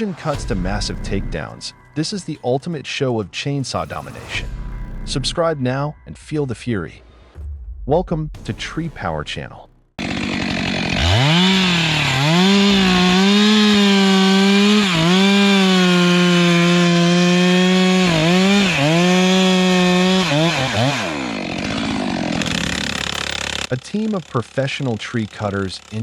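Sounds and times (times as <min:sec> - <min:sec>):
chainsaw cutting wood: 0:10.0 - 0:26.0.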